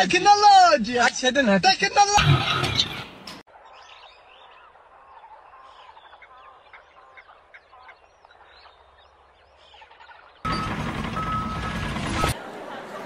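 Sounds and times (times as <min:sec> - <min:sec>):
birds chirping faintly: 0:02.6 - 0:10.8.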